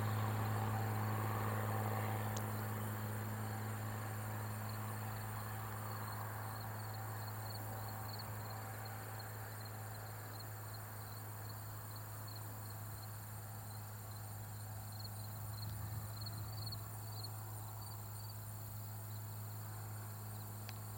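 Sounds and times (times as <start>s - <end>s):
insects chirping: 0.3s - 20.9s.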